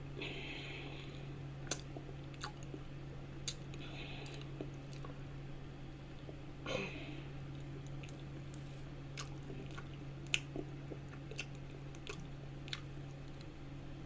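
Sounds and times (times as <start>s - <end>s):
steady low hum: 0.0s - 14.0s
lip and tongue clicks: 1.6s - 2.8s, 3.4s - 5.2s, 9.2s - 13.5s
wet chewing squishing: 1.6s - 5.3s, 7.5s - 13.6s.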